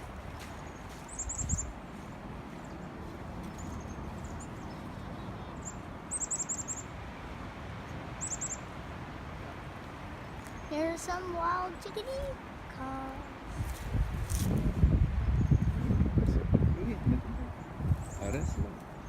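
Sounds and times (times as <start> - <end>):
chickadees calling: 0.6 - 7.0, 7.9 - 8.7.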